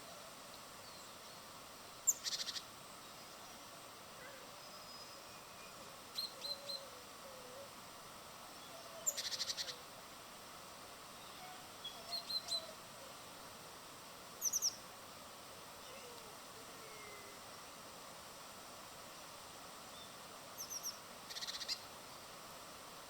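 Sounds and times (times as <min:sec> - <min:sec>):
small birds chirping: 0:00.0 - 0:03.7, 0:08.6 - 0:09.8, 0:11.1 - 0:13.3, 0:14.4 - 0:14.8, 0:19.9 - 0:21.9.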